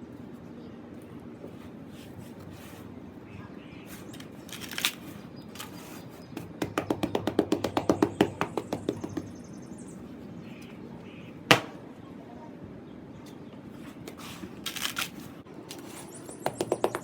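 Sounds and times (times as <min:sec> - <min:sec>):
tapping on cement blocks: 0:06.3 - 0:09.4, 0:11.5 - 0:11.8, 0:15.7 - 0:17.0
loud sharp knock: 0:11.5 - 0:11.8.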